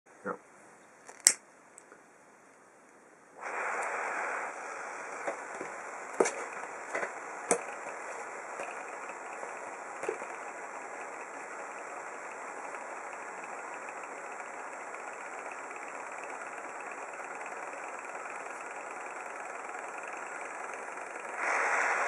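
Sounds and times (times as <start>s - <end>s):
small engine whirring: 4.4s - 22.0s.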